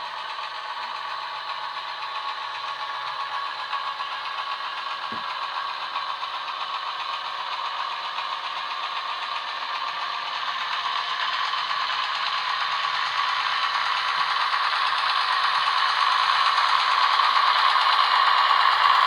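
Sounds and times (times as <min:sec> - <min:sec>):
model train rattling on track: 0:00.0 - 0:19.0.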